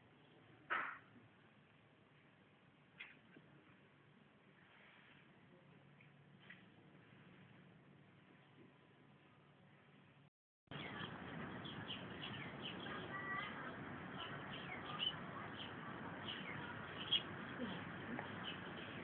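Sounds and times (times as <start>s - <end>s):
outdoor background hiss: 0.0s - 19.0s
small birds chirping: 10.7s - 19.0s.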